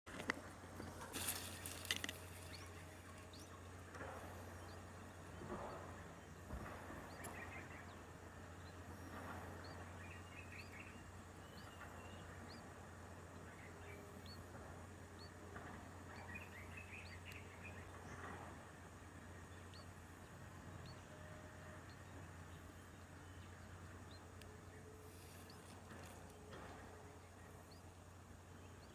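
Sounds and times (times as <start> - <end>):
rustling: 0.1 - 3.3
steady low hum: 0.1 - 28.9.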